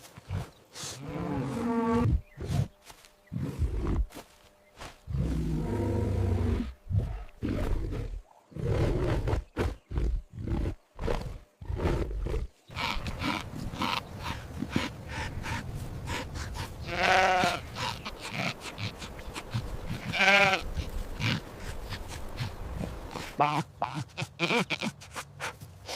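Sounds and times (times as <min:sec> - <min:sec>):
rustling clicking outdoor background: 0:00.0 - 0:05.4, 0:09.3 - 0:25.9
big cat grunting roars: 0:05.1 - 0:15.6
sheep bleating: 0:16.8 - 0:19.0, 0:19.9 - 0:21.4, 0:23.2 - 0:25.1.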